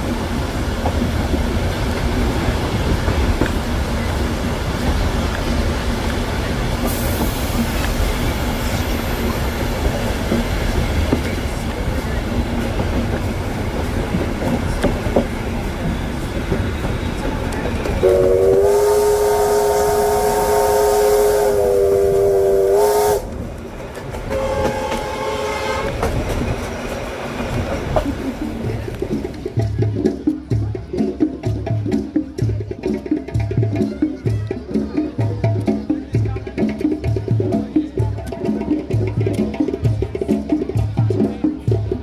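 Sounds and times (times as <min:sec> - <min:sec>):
train rumbling on rails: 0:00.0 - 0:42.0
locomotive chime whistle: 0:18.0 - 0:23.3, 0:24.3 - 0:25.9.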